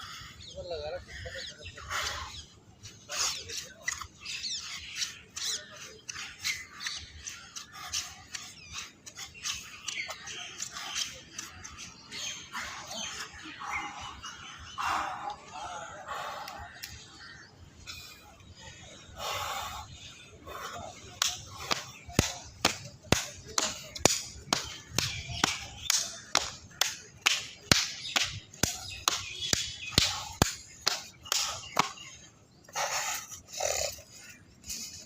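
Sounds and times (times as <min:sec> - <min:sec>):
rapid sharp smacks: 0:21.2 - 0:32.0.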